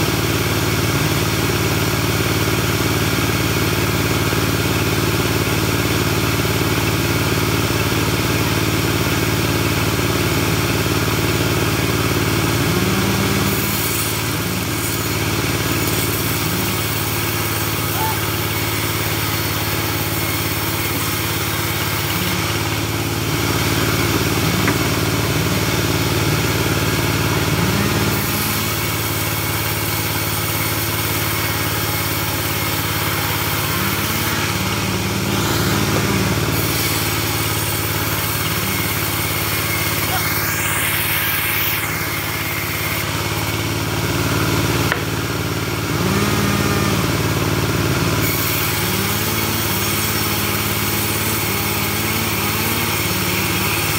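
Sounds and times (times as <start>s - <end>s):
bandsaw mill engine running: 0.0s - 53.9s.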